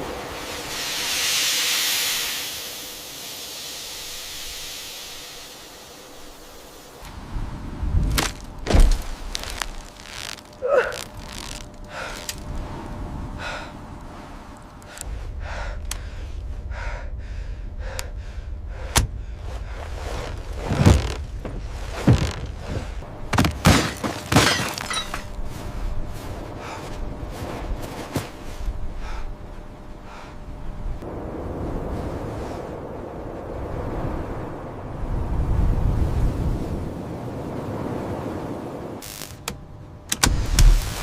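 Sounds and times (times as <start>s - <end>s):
steady rushing noise: 0.0s - 23.4s
heavy thuds and crashing impacts: 18.9s - 25.2s
breaking or shattering: 23.3s - 25.3s.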